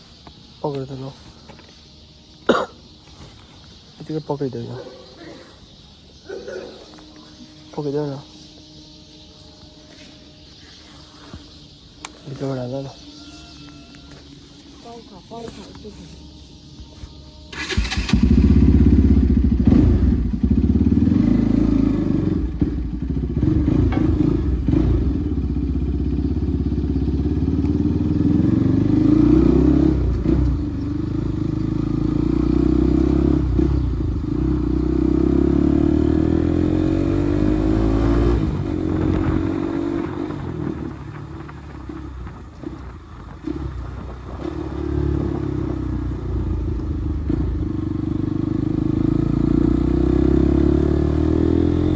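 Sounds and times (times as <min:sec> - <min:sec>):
motorcycle engine revving: 0:17.4 - 0:51.9.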